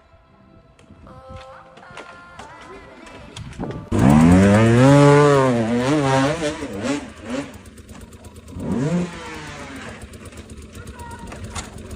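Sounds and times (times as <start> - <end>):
motorcycle engine revving: 3.5 - 11.9.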